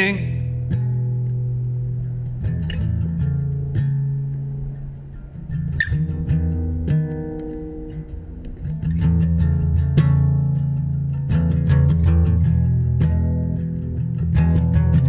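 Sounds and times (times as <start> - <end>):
sustained bass guitar notes: 0.0 - 1.6
plucked guitar notes: 0.0 - 4.9.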